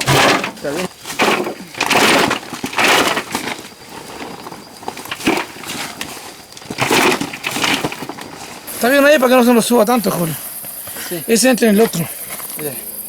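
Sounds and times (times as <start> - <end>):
woody plant material cracking: 0.0 - 9.6.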